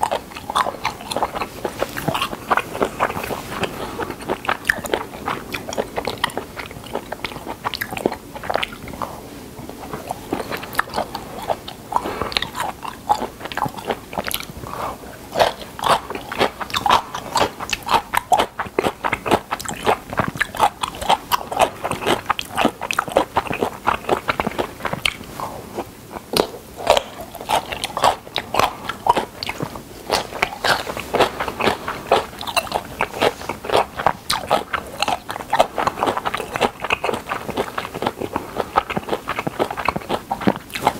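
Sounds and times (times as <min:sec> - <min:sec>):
wet mouth clicks: 0:00.0 - 0:25.4
person chewing crunchy food: 0:00.0 - 0:40.9.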